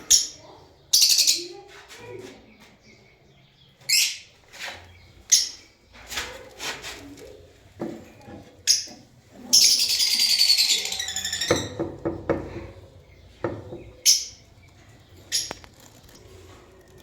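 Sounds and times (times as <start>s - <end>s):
lovebirds chirping shrilly: 9.5s - 12.0s, 13.0s - 15.7s.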